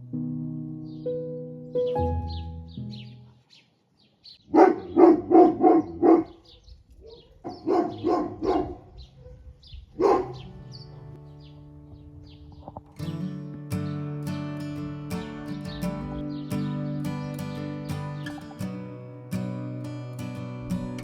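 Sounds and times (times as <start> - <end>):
small birds chirping: 0.8 - 21.0
dog barking: 4.4 - 11.2.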